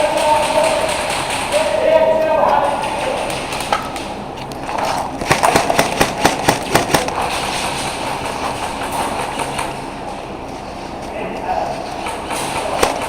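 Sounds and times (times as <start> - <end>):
airsoft gun shots: 5.2 - 7.4, 12.4 - 13.0.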